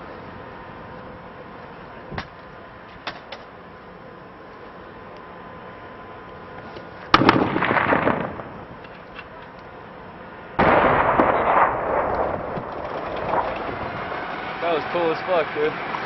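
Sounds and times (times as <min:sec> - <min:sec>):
heavy explosion booms with rumble: 0:07.2 - 0:08.7, 0:10.6 - 0:14.3.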